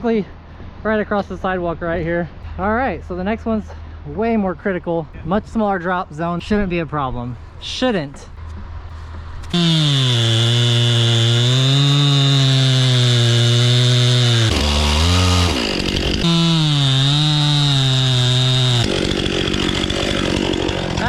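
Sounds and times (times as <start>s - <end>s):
chainsaw cutting into tree: 9.4s - 21.0s.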